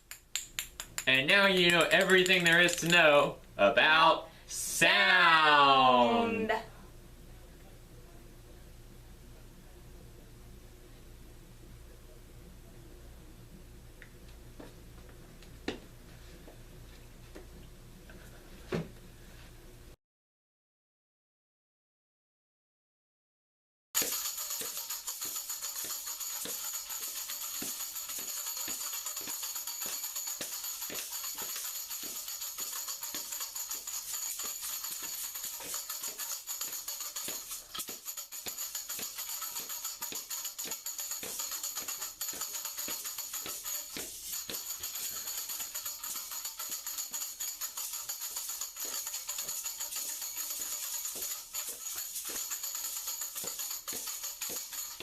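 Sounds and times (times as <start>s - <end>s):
music with jingling percussion: 1.2s - 3.2s, 24.0s - 55.0s.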